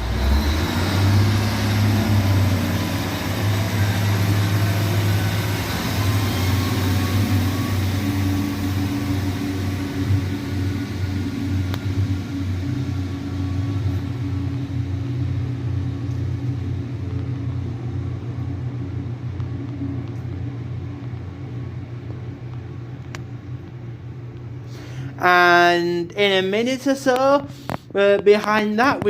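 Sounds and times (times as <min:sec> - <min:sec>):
diesel train engine drone: 0:00.0 - 0:29.0.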